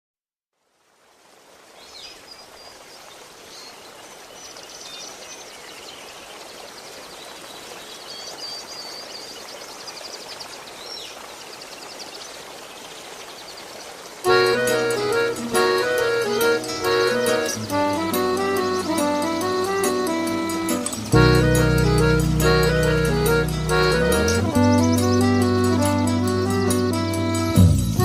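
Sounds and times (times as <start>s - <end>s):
running water rushing: 0.6s - 28.0s
songbirds chirping: 1.7s - 27.6s
music: 14.3s - 28.0s.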